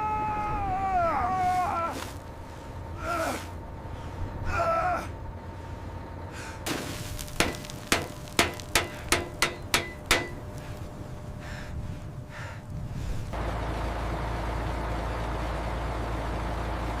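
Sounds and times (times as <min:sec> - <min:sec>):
hammer striking metal: 0:07.4 - 0:10.5.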